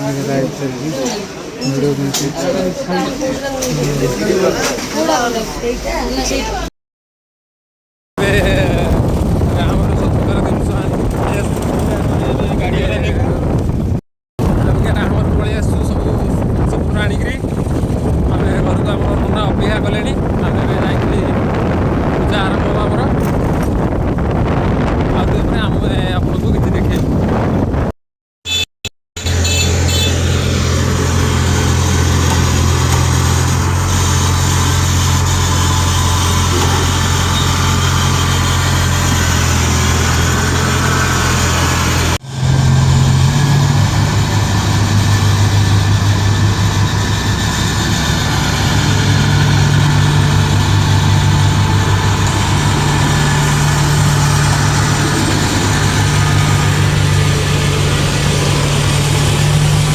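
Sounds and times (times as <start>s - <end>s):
tractor engine running: 29.2s - 59.9s.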